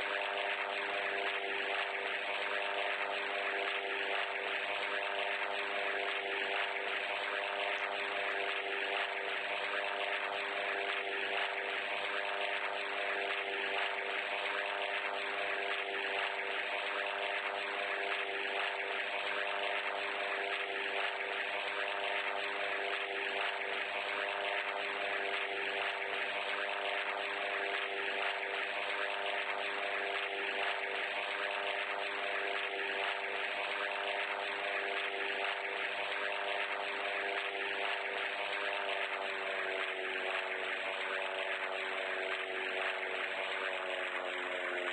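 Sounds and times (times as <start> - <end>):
motor droning: 0.0 - 44.9.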